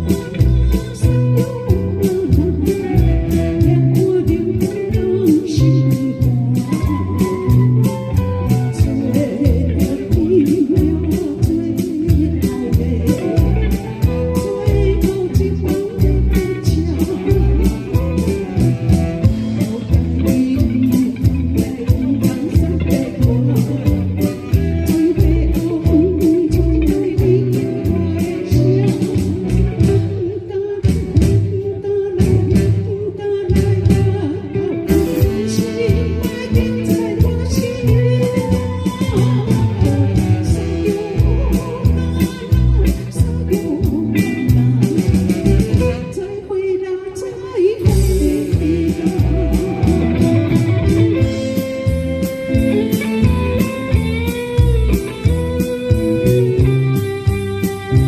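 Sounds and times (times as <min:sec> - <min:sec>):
bass: 0:00.0 - 0:58.0
guitar: 0:00.0 - 0:58.0
person singing: 0:00.0 - 0:58.0
steady drum beat: 0:47.9 - 0:58.0.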